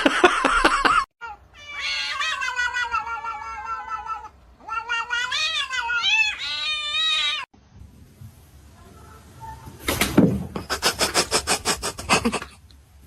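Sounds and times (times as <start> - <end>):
cat meowing: 1.2 - 7.5.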